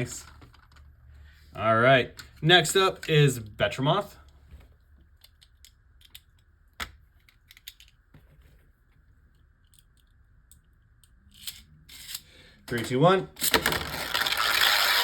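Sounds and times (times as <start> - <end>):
plastic spinning tops clicking: 13.4 - 15.0.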